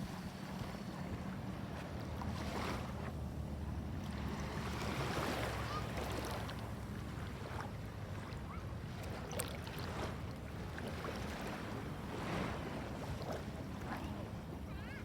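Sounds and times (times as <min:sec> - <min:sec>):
boat engine humming: 0:00.0 - 0:08.9
wind: 0:00.0 - 0:15.0.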